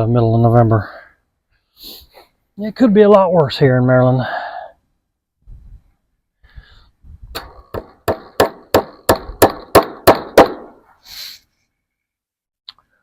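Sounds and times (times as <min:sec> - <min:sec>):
hammer blows on fence staple: 0:07.3 - 0:10.8.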